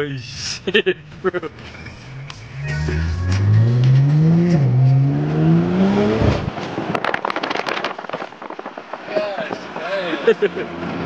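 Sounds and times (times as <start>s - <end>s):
car engine accelerating: 0.8s - 9.1s
exhaust pops and crackles: 6.3s - 10.4s.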